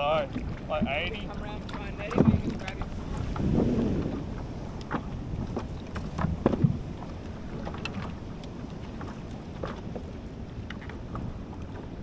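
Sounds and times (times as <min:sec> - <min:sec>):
water lapping around kayak: 0:00.0 - 0:12.0
wind on microphone: 0:00.0 - 0:12.0
knocks on kayak: 0:02.1 - 0:04.2.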